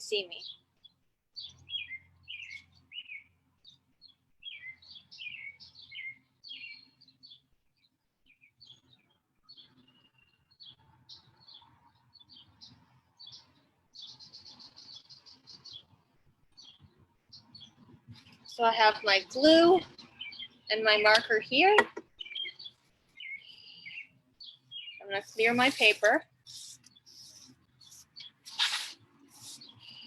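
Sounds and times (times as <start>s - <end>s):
birds chirping and whistling: 1.4s - 7.4s, 8.4s - 15.9s, 16.6s - 30.0s
bird trilling: 22.2s - 27.5s.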